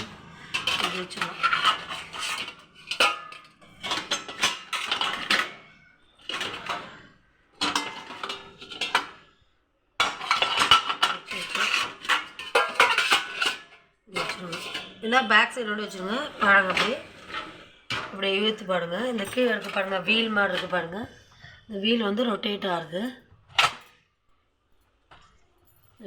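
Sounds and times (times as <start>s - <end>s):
pots clinking in dishwasher rack: 0.0s - 5.6s, 6.3s - 7.0s, 7.6s - 9.3s, 10.0s - 15.0s, 15.9s - 18.5s.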